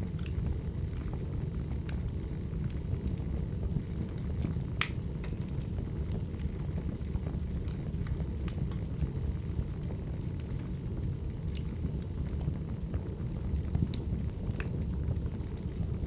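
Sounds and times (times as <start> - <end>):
logs crackling and popping: 0.0 - 16.0
wood fire rumbling: 0.0 - 16.0.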